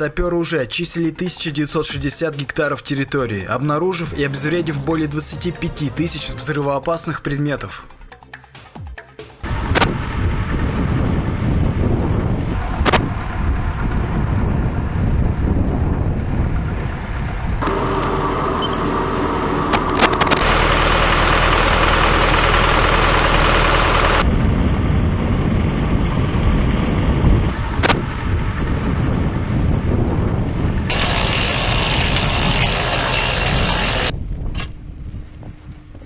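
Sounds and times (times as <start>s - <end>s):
tractor engine running: 9.4s - 34.1s
auger boring into dry soil: 17.6s - 24.2s, 30.9s - 34.1s
sharp click: 27.8s - 28.0s.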